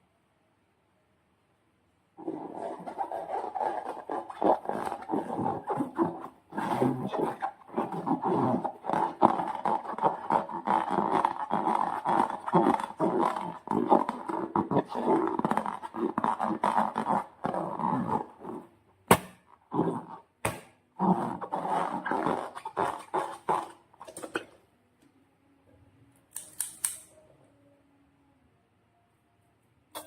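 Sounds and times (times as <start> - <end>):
slime squelching and crackling: 2.2 - 18.6, 19.7 - 24.2.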